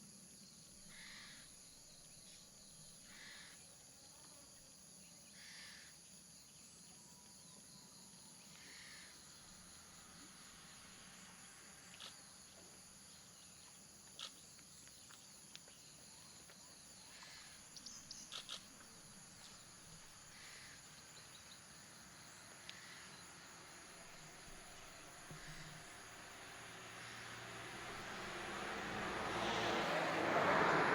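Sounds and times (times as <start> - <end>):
insects droning: 0.0 - 30.9
approaching vehicle: 24.3 - 30.9.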